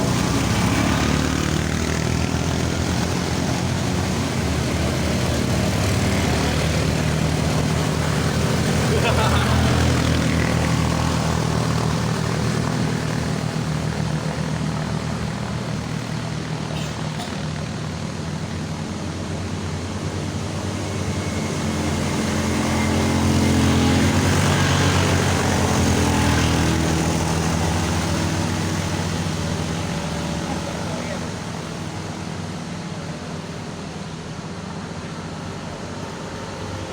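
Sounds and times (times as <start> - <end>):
vehicle engine droning under load: 0.0 - 36.9.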